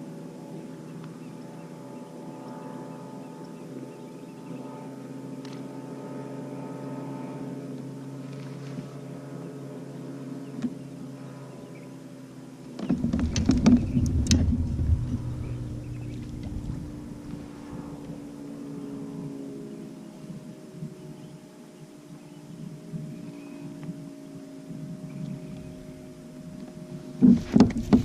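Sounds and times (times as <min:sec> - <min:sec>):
motor humming: 0:12.6 - 0:28.0
rough rushing noise with crackles: 0:12.8 - 0:18.3.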